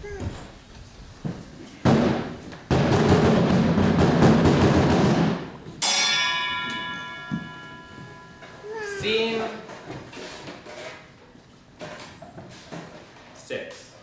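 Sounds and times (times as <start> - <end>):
rapid drum roll: 1.9 - 5.5
struck metal bell ringing: 5.8 - 9.6.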